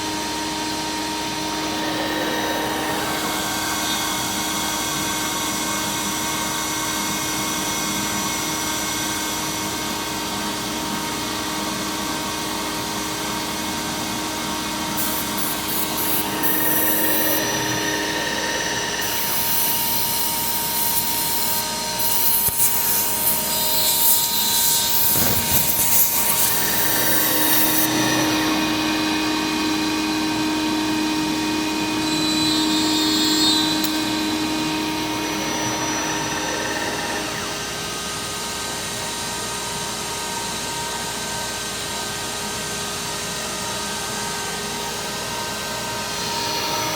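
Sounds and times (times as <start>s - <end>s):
harsh cutting hiss: 0.0s - 6.6s, 14.9s - 29.9s
router spindle whine: 0.0s - 46.9s.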